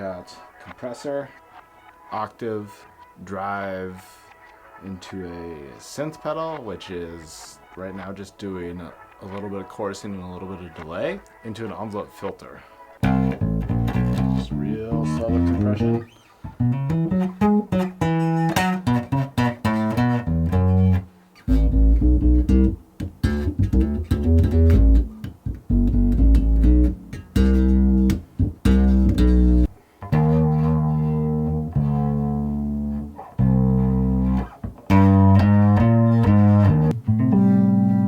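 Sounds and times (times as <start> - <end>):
electric bass with effects: 13.0 - 38.0.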